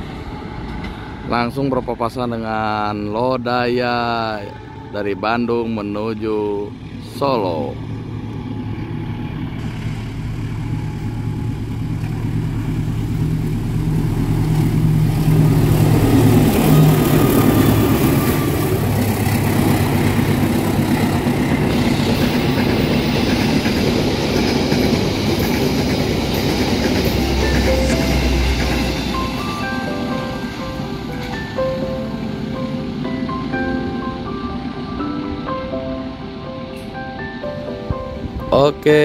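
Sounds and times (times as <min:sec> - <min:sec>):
locomotive engine drone: 0:00.0 - 0:38.6
train wheels rumbling on rails: 0:06.5 - 0:34.3.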